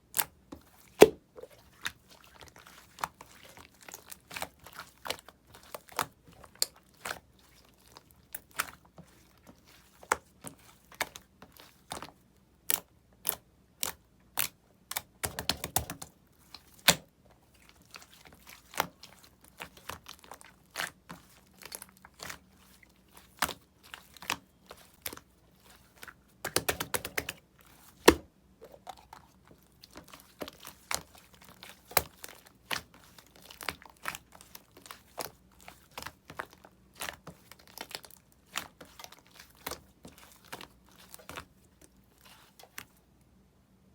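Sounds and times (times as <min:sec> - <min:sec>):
sharp wet clicks and pops: 0:00.1 - 0:00.4, 0:10.9 - 0:17.0, 0:26.4 - 0:41.5.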